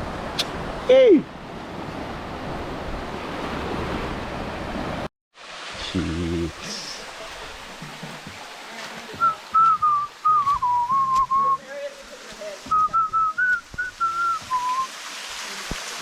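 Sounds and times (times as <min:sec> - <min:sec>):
water running: 0:05.5 - 0:16.0
person whistling a tune: 0:09.2 - 0:11.6, 0:12.7 - 0:14.9.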